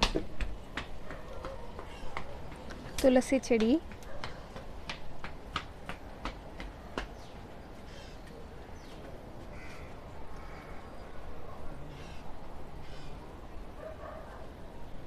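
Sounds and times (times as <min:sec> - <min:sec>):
crow cawing: 0:09.5 - 0:11.0, 0:11.9 - 0:13.1.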